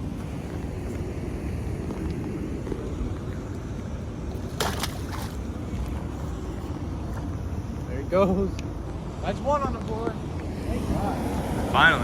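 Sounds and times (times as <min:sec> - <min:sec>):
rushing water: 0:00.0 - 0:07.6, 0:10.5 - 0:12.0
wind rumble on microphone: 0:00.0 - 0:12.0.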